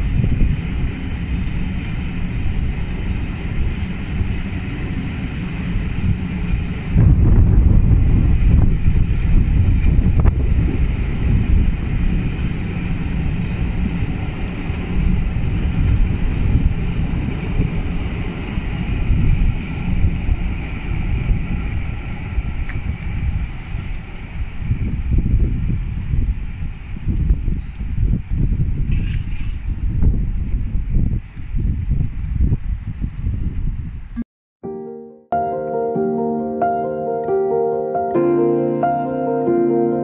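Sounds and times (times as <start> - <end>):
train wheels rumbling on rails: 0.0 - 34.1
high wheel squeal: 0.6 - 24.0, 24.6 - 26.6.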